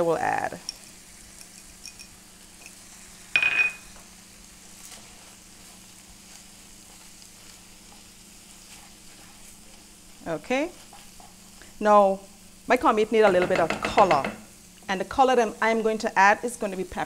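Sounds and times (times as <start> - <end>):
food sizzling in a pan: 0.0 - 17.0
metallic clink: 0.6 - 2.8, 3.4 - 3.8.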